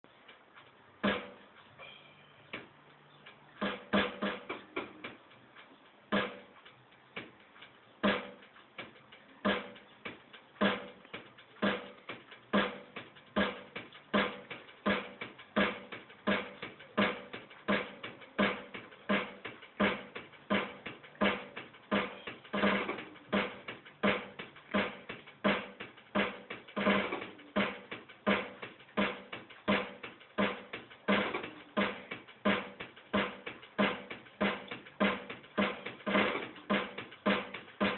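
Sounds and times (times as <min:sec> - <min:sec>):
hand percussion beat: 0:08.0 - 0:37.9.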